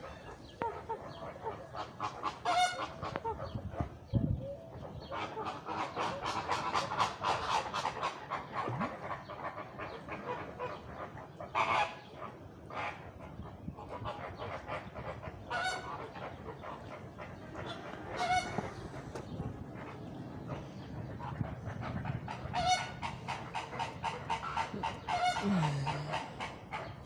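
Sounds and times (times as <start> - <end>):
flamingos honking: 0.0 - 3.6, 13.9 - 27.0.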